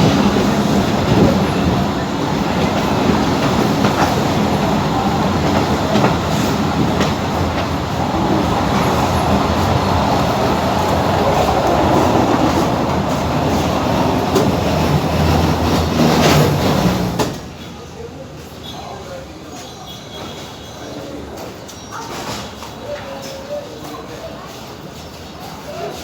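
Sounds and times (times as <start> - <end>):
rail joint clicks: 0.0 - 17.5
train wheels rumbling on rails: 0.0 - 18.5.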